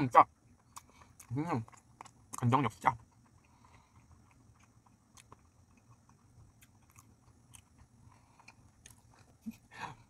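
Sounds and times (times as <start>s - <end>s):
soft mouth clicks chewing: 0.5s - 9.7s.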